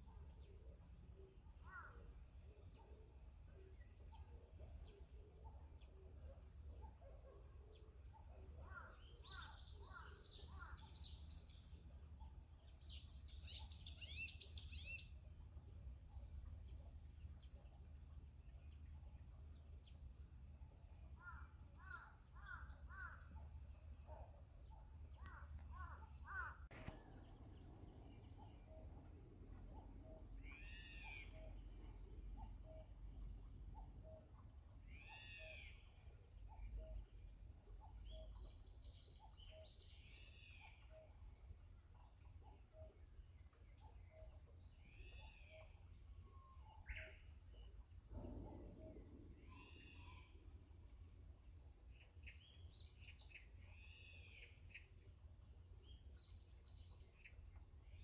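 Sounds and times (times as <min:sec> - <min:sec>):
birds calling: 0:24.9 - 0:29.1.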